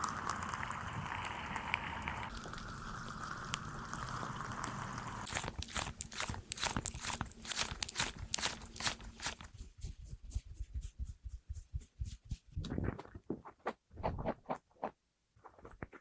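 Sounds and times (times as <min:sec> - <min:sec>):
crisp crackling clicks: 0:03.5 - 0:09.5.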